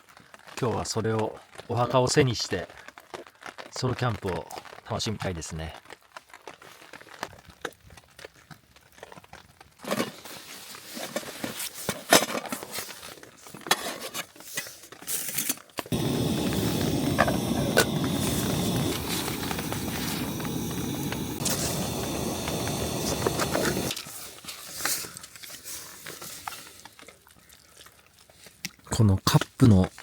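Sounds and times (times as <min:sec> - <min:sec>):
camp cookware clicking: 0:15.8 - 0:24.1
steady hiss: 0:15.9 - 0:25.2.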